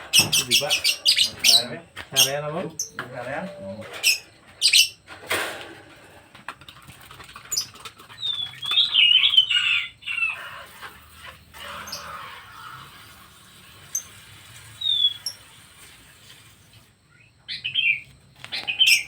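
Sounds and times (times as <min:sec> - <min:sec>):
pet birds chirping: 0:00.0 - 0:05.1, 0:07.4 - 0:10.8, 0:13.9 - 0:15.6, 0:17.1 - 0:19.0.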